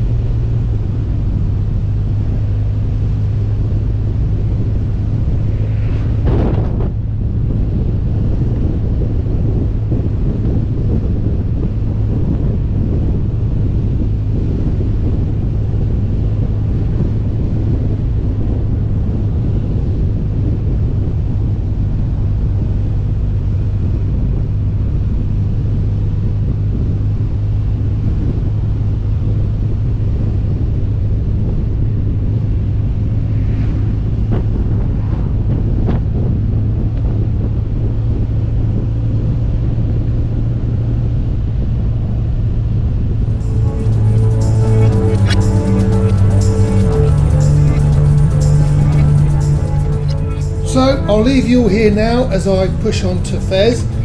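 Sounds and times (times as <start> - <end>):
motorcycle engine drone: 0.0 - 19.3, 42.9 - 54.0
wind noise on microphone: 0.0 - 54.0.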